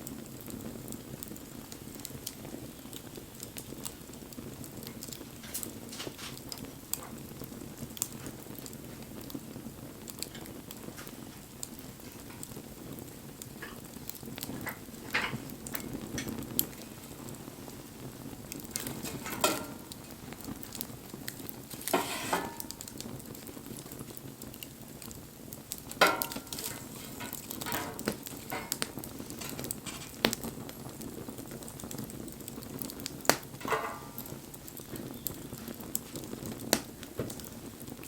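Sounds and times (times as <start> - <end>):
bonfire crackling: 0.0 - 38.0
low rushing of flames: 0.0 - 38.0
sharp pops from burning wood: 0.0 - 38.0.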